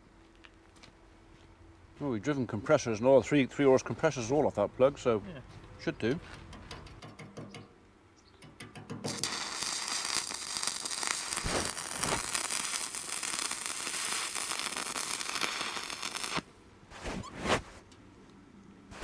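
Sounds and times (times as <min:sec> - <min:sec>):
welding arc crackling: 0:09.1 - 0:16.5.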